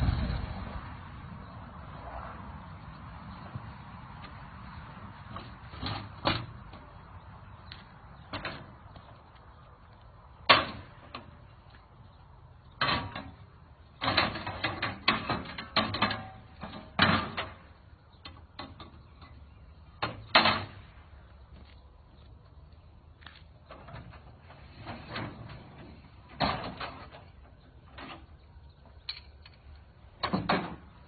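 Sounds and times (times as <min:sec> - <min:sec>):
loading ramp knocks and clunks: 0:05.3 - 0:07.0, 0:08.2 - 0:09.1, 0:10.4 - 0:11.4, 0:12.7 - 0:21.0, 0:23.7 - 0:29.0, 0:30.0 - 0:31.0.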